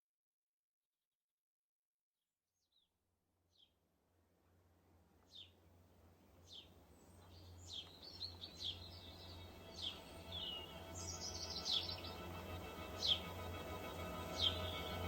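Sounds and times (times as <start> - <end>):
birds chirping: 6.4 - 15.0
sustained music: 8.3 - 15.0.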